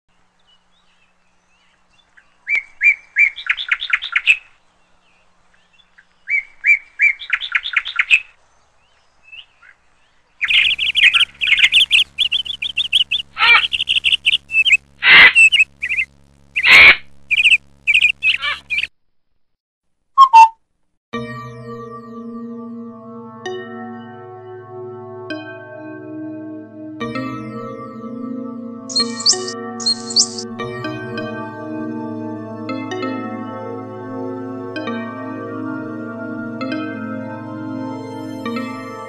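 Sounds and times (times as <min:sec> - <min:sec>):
birds chirping: 0:00.1 - 0:18.9, 0:28.9 - 0:30.4
faint steady hum: 0:08.4 - 0:18.9
loud bird calls: 0:10.4 - 0:18.9, 0:28.9 - 0:30.4.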